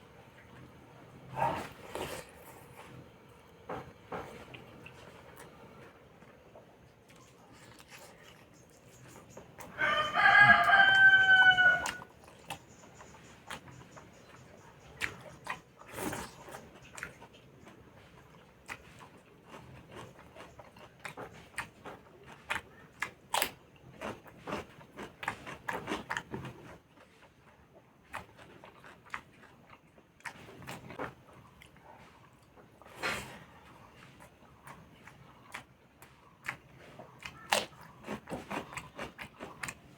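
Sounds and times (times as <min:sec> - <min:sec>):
eating and chewing clicks: 0:00.2 - 0:39.9
rooster crowing: 0:09.6 - 0:12.1.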